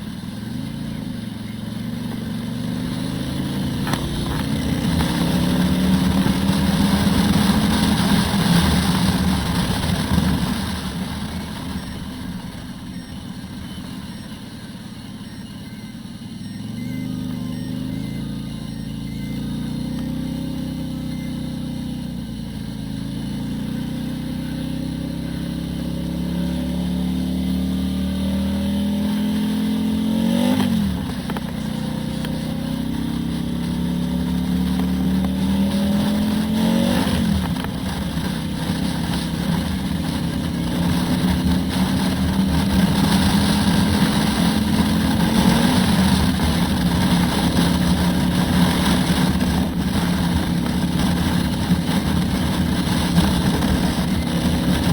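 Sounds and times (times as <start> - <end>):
motorcycle accelerating with upshifts: 0.0 - 54.9
wind rush: 35.6 - 54.9.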